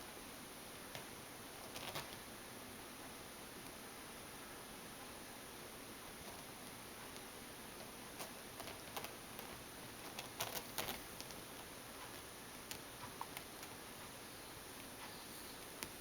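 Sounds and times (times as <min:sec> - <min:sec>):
steady hiss: 0:00.0 - 0:16.0
small ticks and scuffs: 0:00.9 - 0:02.3, 0:06.1 - 0:16.0.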